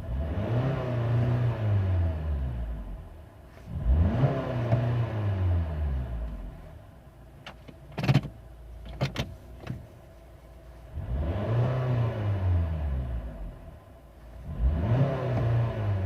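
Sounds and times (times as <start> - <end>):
car engine revving: 0.0 - 6.7, 10.9 - 16.0.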